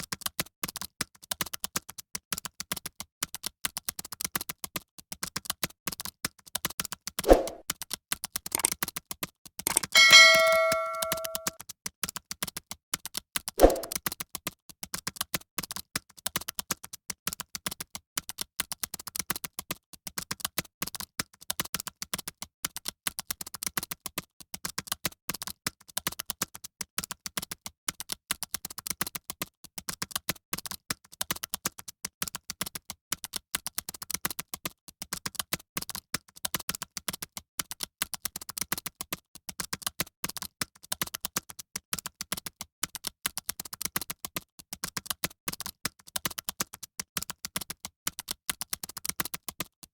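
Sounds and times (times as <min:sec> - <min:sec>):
fast typing on keyboard: 0:00.0 - 0:10.0, 0:12.0 - 0:49.9.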